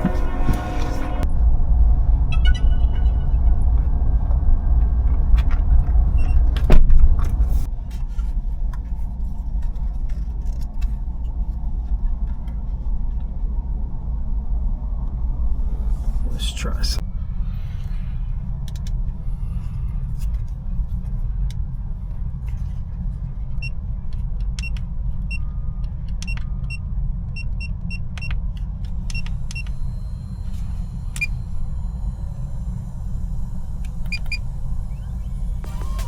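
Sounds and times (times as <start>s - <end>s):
steady low rumble: 0.0s - 36.0s
short high-pitched beeps: 29.1s - 36.0s.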